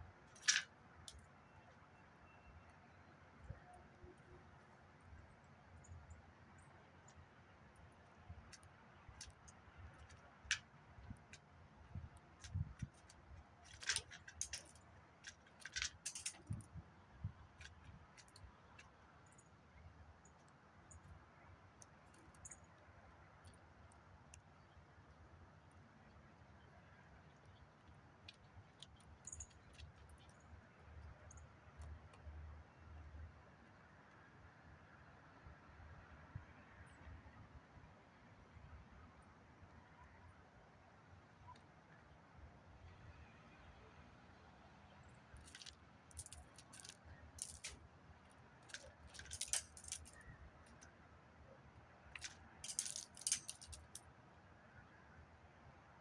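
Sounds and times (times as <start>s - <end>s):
light clicking and rattling: 0.3s - 1.2s, 8.4s - 16.8s, 45.4s - 51.0s, 52.1s - 54.1s
light clicks and taps: 45.4s - 50.9s, 52.1s - 54.0s.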